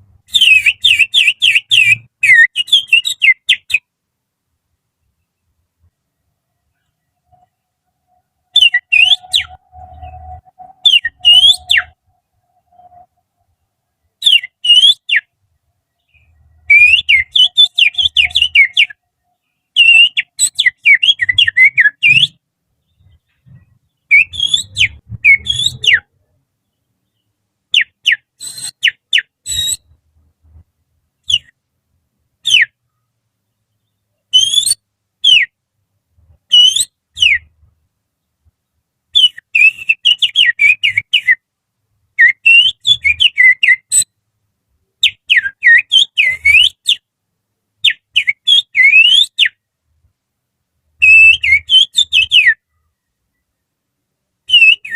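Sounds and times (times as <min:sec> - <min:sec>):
finger whistling bird song: 0:00.3 - 0:03.8, 0:08.5 - 0:12.0, 0:14.2 - 0:15.3, 0:16.6 - 0:19.0, 0:19.8 - 0:22.4, 0:24.1 - 0:26.1, 0:27.8 - 0:29.9, 0:34.3 - 0:35.5, 0:36.5 - 0:37.5, 0:39.2 - 0:41.4, 0:42.2 - 0:44.1, 0:45.0 - 0:47.0, 0:47.9 - 0:49.6, 0:51.0 - 0:52.6, 0:54.5 - 0:54.9.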